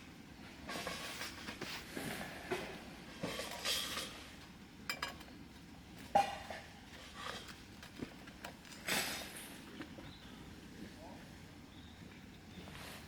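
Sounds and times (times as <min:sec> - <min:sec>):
cutlery and dishes clinking: 0:04.9 - 0:05.3.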